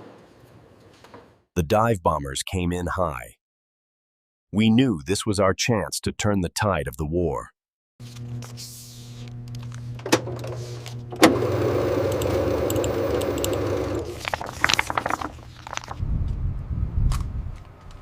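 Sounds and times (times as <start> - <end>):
low mechanical hum: 8.0 - 18.0.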